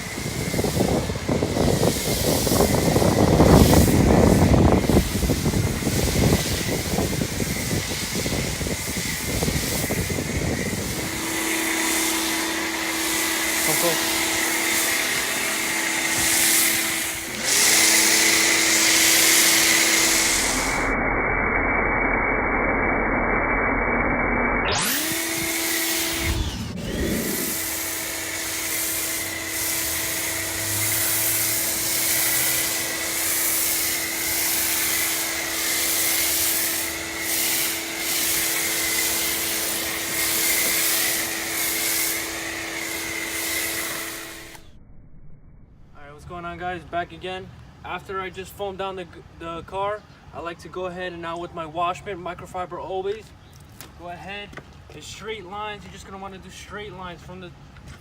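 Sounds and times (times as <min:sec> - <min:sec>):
spray hissing: 0:00.0 - 0:20.9, 0:24.8 - 0:44.7
pressure washer motor whine: 0:00.0 - 0:46.0.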